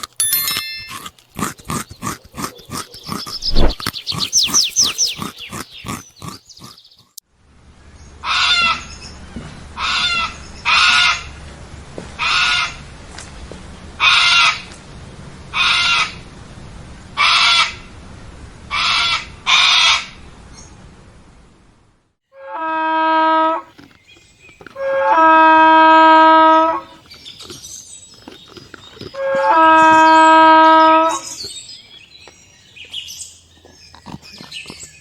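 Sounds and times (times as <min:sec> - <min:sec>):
bird giving harsh calls: 0:02.0 - 0:07.2
rapid falling bird chirps: 0:02.6 - 0:07.2.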